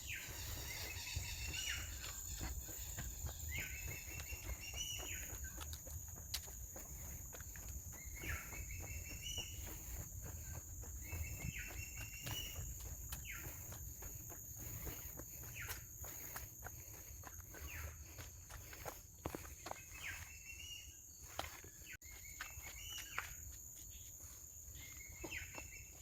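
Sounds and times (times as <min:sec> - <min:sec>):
high-pitched insect drone: 0:00.0 - 0:19.4
footsteps on a trail: 0:00.0 - 0:26.0.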